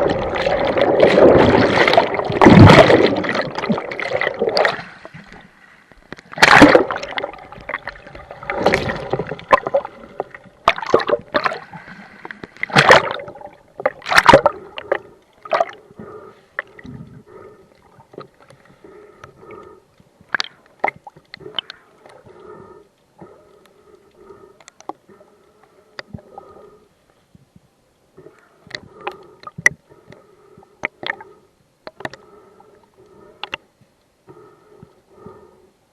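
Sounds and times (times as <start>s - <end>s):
loud water splashes: 0.0s - 4.8s, 6.4s - 7.2s, 12.7s - 13.2s
water sloshing and gurgling: 0.0s - 26.8s.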